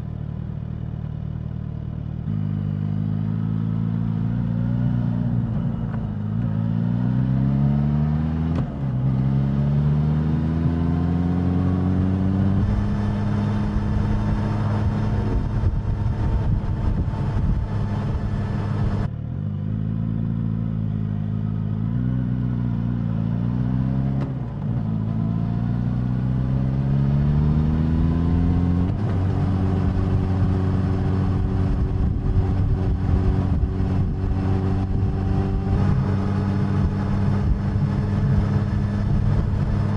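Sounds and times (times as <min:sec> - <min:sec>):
motorcycle engine accelerating: 0:00.0 - 0:39.9
low wind rumble: 0:11.6 - 0:19.1, 0:24.4 - 0:39.9.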